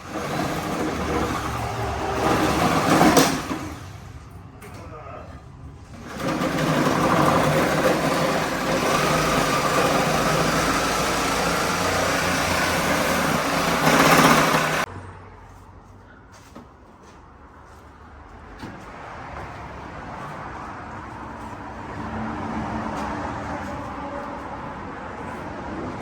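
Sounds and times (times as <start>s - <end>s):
car engine running: 6.5s - 14.9s.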